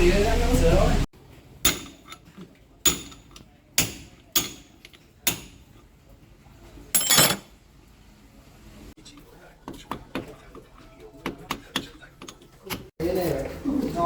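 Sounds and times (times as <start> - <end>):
metal parts rattling clatter: 7.0 - 7.4.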